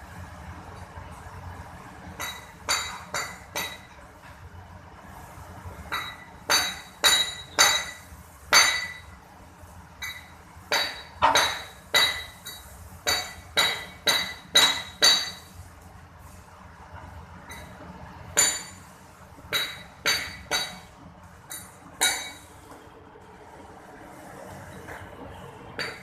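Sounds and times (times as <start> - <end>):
hammer striking metal: 2.2 - 4.0, 5.9 - 9.1, 10.0 - 15.5, 18.4 - 18.8, 19.5 - 20.9, 21.5 - 22.5, 25.8 - 26.0.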